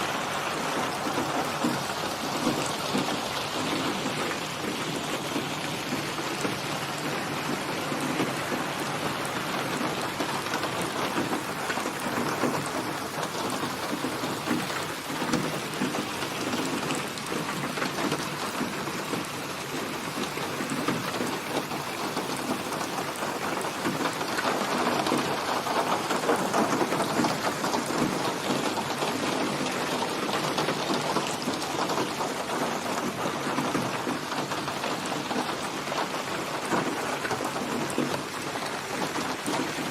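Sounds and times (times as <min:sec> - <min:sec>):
rain pouring: 0:00.0 - 0:39.9.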